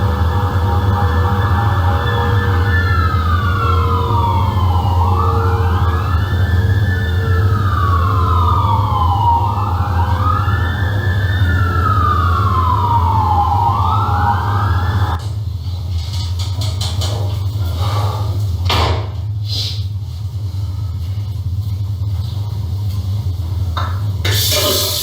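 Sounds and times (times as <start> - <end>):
emergency siren wailing: 0.0 - 15.2
steady low hum: 0.0 - 25.0.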